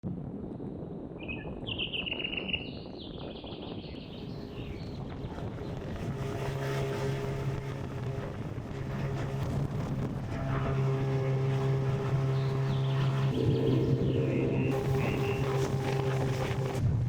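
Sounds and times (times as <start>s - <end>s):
songbird singing: 1.2s - 5.8s, 12.2s - 16.1s
boat motor rumbling: 4.0s - 17.0s.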